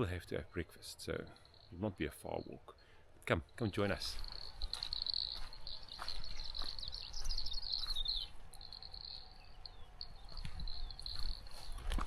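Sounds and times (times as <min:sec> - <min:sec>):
soft footsteps on path: 0:03.2 - 0:12.0
birds chirping and singing: 0:03.6 - 0:12.0.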